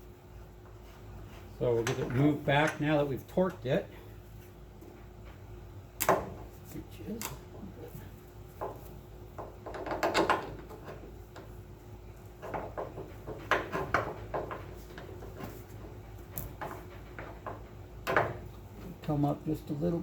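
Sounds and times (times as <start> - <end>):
metallic clunks and rattles: 9.4 - 11.0.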